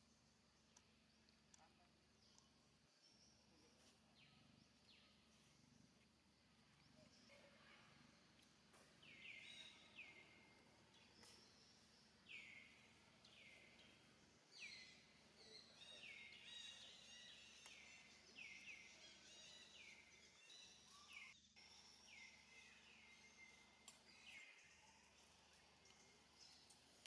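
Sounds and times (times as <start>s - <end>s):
birds chirping: 6.6s - 27.0s.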